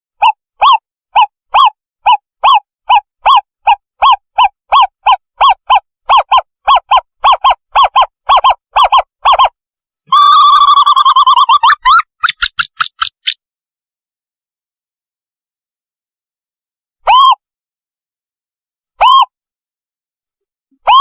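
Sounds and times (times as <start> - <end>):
wavering owl trill: 0.2 - 13.4, 19.0 - 19.3.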